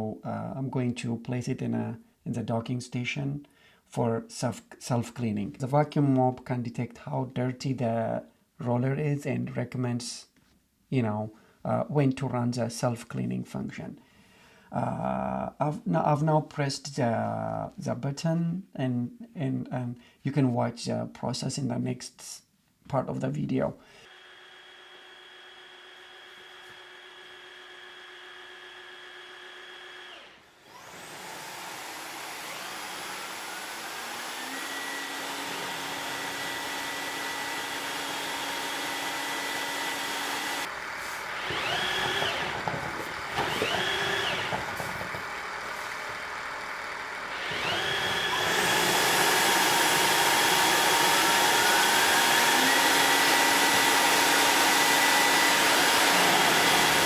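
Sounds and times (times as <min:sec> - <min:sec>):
vacuum mop motor whining: 0:24.1 - 0:57.0.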